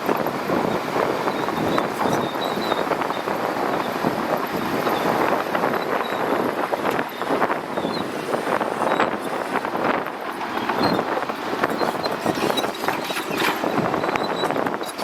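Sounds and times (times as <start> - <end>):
bulldozer clattering: 0.0 - 15.0.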